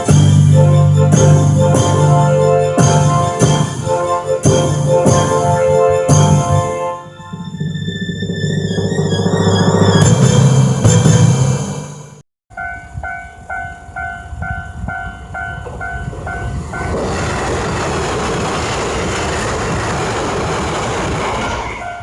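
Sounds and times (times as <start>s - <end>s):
level-crossing warning bell ringing: 0.0s - 11.3s, 12.5s - 17.0s
train passing close by: 0.0s - 11.9s, 12.6s - 22.0s.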